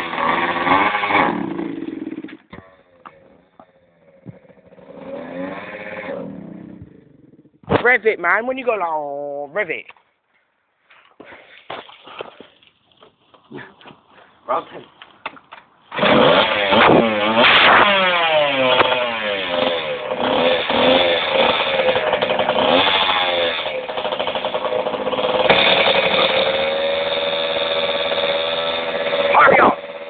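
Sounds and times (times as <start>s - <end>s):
two-stroke motorbike engine revving: 0.0s - 2.5s, 3.9s - 7.8s, 15.9s - 30.0s.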